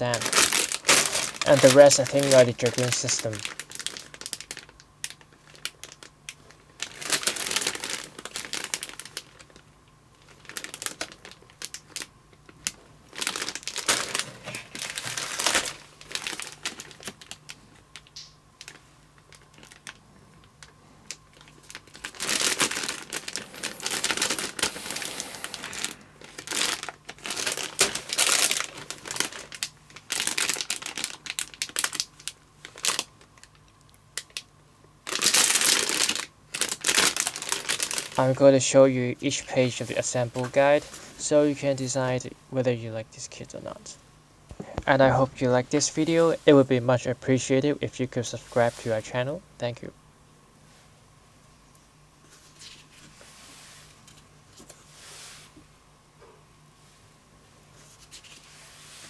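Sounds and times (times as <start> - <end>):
plastic bags crinkling: 0.0 - 42.2, 44.5 - 49.3.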